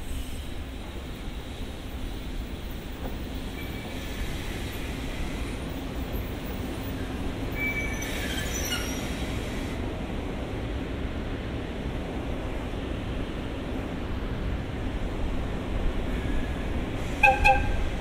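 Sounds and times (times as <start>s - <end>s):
train rumbling: 0.0s - 18.0s
train wheels squealing: 3.4s - 5.6s, 6.9s - 9.6s.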